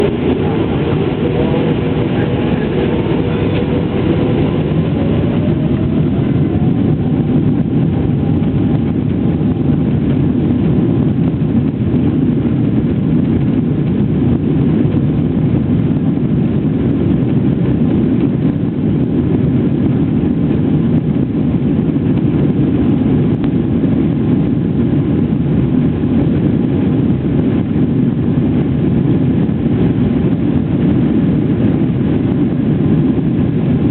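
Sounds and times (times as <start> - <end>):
faint rising whine: 0.0 - 11.9
jet engines roaring: 0.0 - 33.9.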